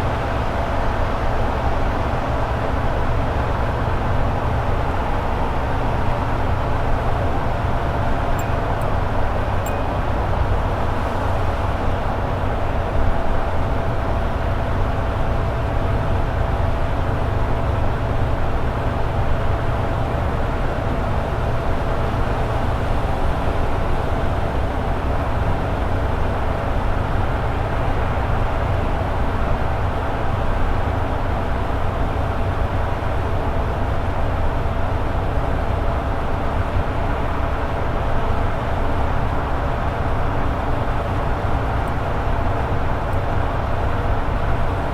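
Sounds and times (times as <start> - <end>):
road and tyre rumble: 0.0 - 44.9.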